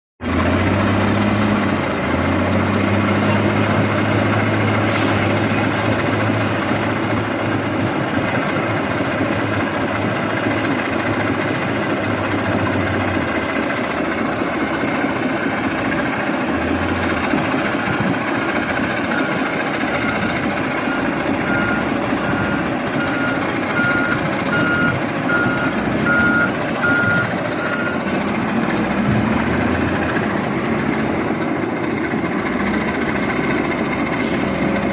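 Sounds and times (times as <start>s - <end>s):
heavy machinery running: 0.2s - 34.9s
reversing alarm beeping: 16.6s - 28.1s.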